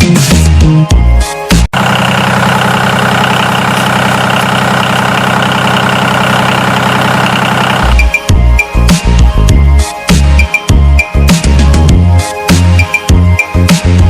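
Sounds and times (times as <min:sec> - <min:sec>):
engine idling: 0:01.7 - 0:08.4.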